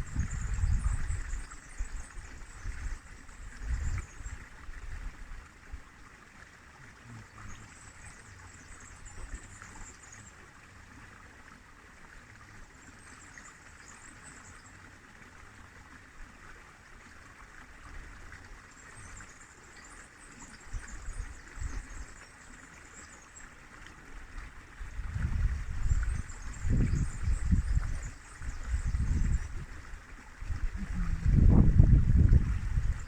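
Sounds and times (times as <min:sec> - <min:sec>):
river water flowing: 0:00.0 - 0:33.0.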